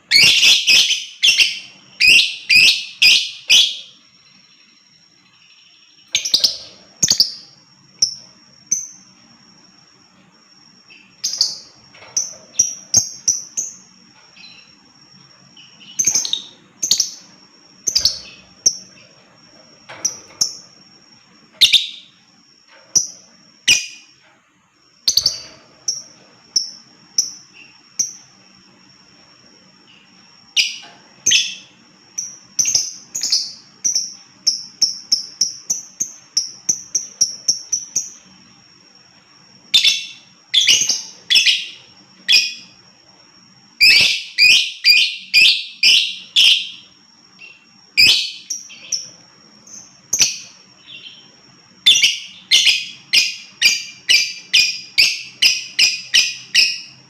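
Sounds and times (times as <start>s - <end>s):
lovebird chirping: 0.0s - 10.2s, 10.8s - 24.2s, 25.0s - 28.8s, 29.7s - 38.5s, 39.6s - 42.8s, 43.7s - 57.0s.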